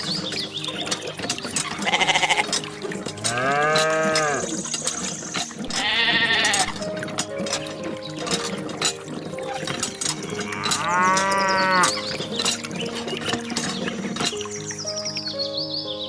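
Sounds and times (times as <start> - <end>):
faint steady ticking: 0.0 - 15.2
farm animals bleating: 1.7 - 2.5, 3.2 - 4.5, 5.7 - 6.8, 10.4 - 12.0.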